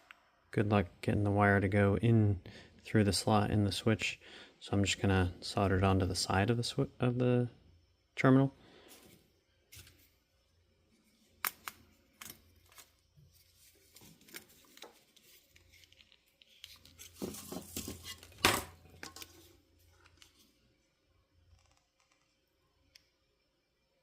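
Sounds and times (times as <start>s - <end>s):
hands handling wire and tools: 11.4s - 20.5s
rustling and scraping: 12.7s - 20.6s.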